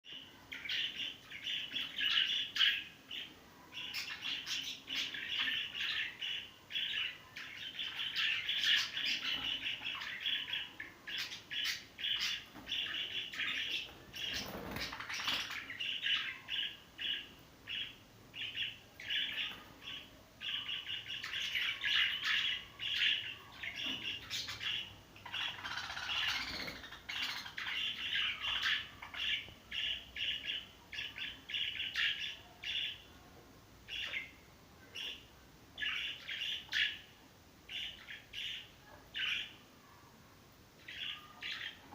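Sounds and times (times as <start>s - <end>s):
budgerigars chattering: 0.6s - 33.0s.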